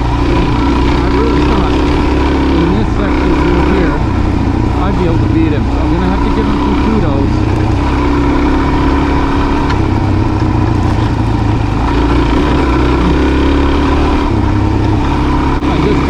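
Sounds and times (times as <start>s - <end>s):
motorcycle engine under load: 0.0s - 16.0s.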